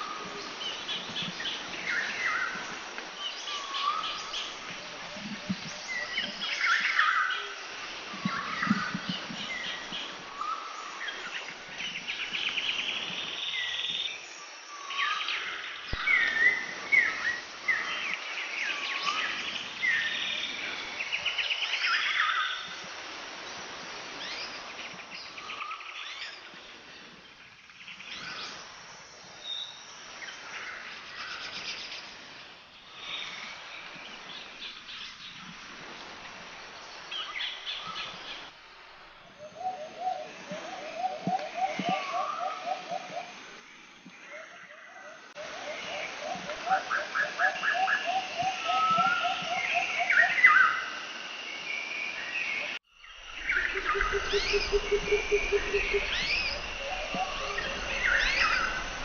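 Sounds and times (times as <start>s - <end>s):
outdoor background hiss: 0.0s - 59.0s
birds chirping and trilling: 44.2s - 51.0s, 51.6s - 59.0s.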